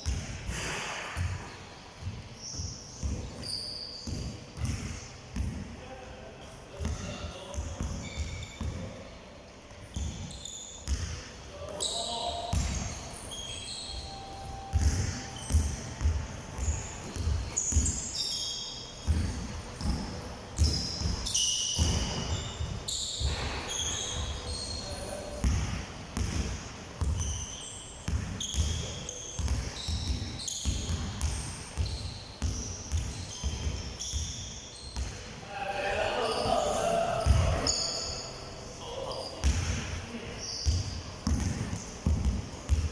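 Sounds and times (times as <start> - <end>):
basketballs bouncing on hard court: 0.0 - 5.7, 6.8 - 9.0, 9.9 - 11.3, 12.5 - 13.3, 14.6 - 18.3, 19.0 - 35.3, 37.2 - 37.8, 39.4 - 40.0, 40.6 - 42.9
short high squeaks: 2.4 - 4.2, 9.9 - 10.9, 11.7 - 15.6, 16.6 - 19.0, 20.6 - 25.2, 27.1 - 30.8, 31.8 - 35.3, 37.6 - 38.4.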